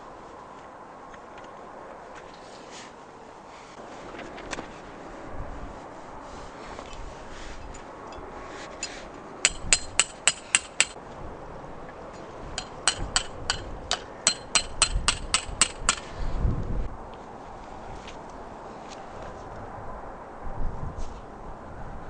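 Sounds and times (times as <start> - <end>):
hammer striking tent pegs: 9.4 - 11.0, 12.6 - 16.1.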